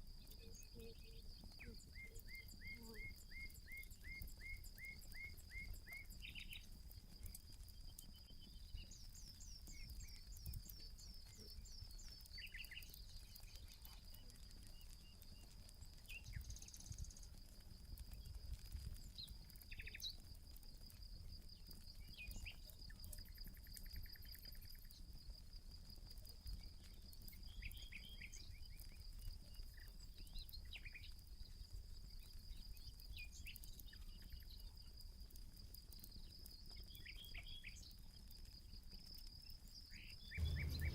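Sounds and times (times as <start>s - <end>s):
campfire crackles: 0.0s - 40.9s
insect trill: 0.2s - 35.0s, 35.6s - 40.9s
low rumble: 40.4s - 40.9s.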